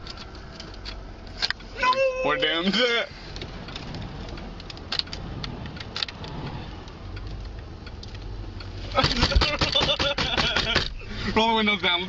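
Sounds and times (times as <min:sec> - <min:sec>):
car interior rumble: 0:00.0 - 0:12.0
sharp clicks: 0:03.3 - 0:11.0.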